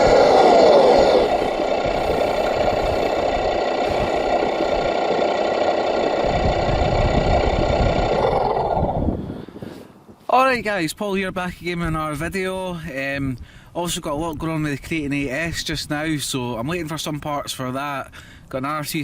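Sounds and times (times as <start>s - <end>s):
engine running steadily: 0.0s - 9.6s.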